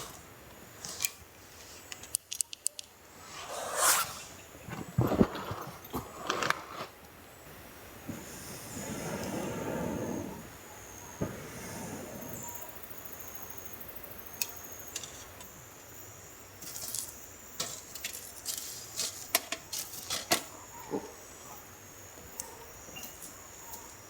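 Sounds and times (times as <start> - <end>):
small sharp clicks and clinks: 1.9 - 3.0
faint high hiss: 2.8 - 19.4.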